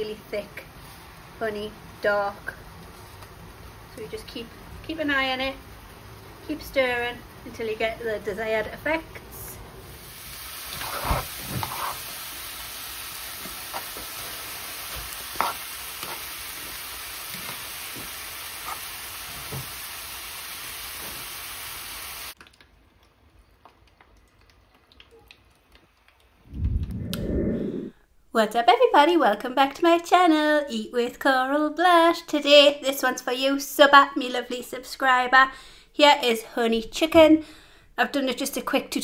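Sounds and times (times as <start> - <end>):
chicken sizzling in a pan: 0.0 - 8.3, 9.8 - 22.4.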